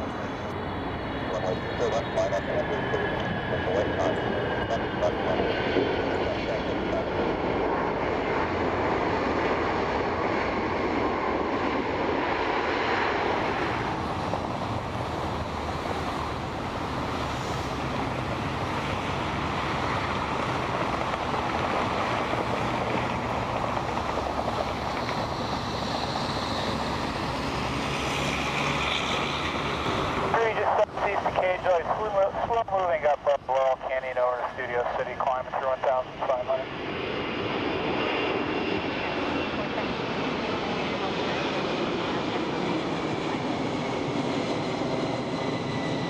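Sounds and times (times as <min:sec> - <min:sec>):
jet engines running: 0:00.0 - 0:46.0.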